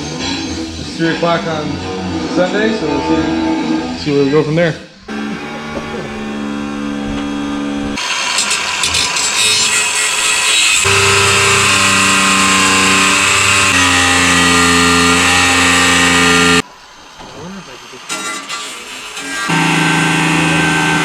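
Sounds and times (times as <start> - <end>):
sustained music chords: 5.1 - 8.0, 10.9 - 16.6.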